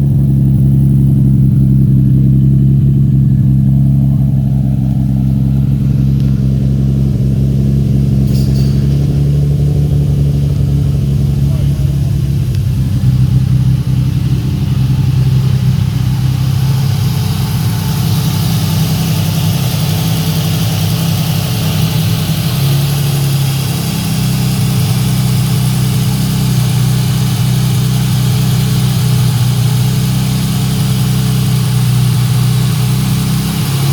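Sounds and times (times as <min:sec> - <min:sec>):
car engine idling: 0:00.0 - 0:33.9
hiss: 0:11.6 - 0:33.9.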